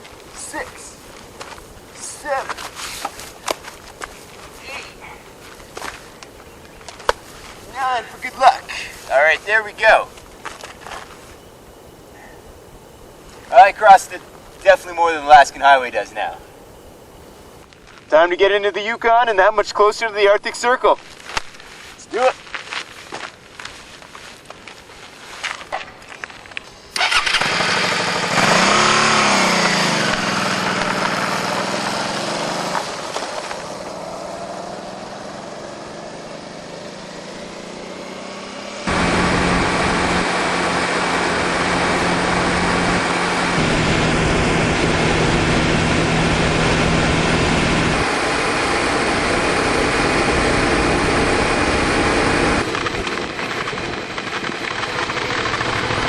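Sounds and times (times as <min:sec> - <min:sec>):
motorcycle engine revving: 0:26.9 - 0:56.0.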